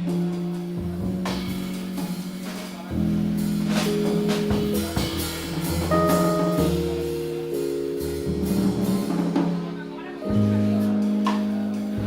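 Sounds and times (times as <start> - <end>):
bass line: 0.0 - 12.0
drum kit and cymbal strokes: 0.0 - 12.0
sustained piano chords: 0.0 - 12.0.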